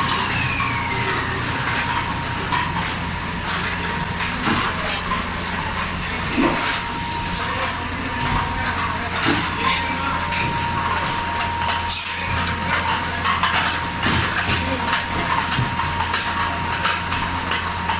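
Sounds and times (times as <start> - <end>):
machine humming: 0.0 - 17.9.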